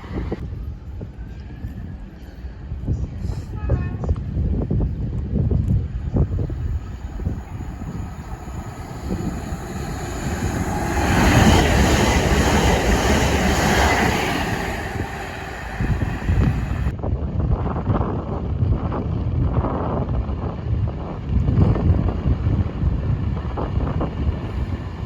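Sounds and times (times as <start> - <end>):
train passing at speed: 0.0 - 2.8, 5.0 - 17.0, 20.4 - 25.0
wind buffeting microphone: 0.0 - 25.0.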